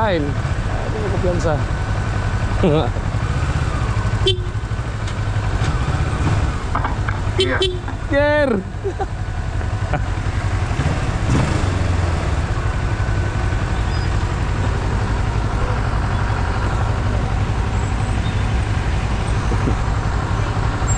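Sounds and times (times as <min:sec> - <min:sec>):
deep engine exhaust rumble: 0:00.0 - 0:20.9.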